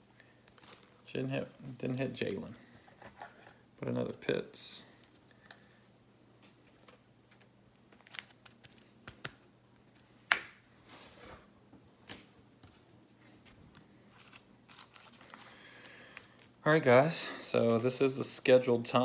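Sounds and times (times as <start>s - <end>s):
packaging rustle: 0.4s - 2.6s, 14.1s - 16.6s
cards clicking and tapping: 8.0s - 9.4s.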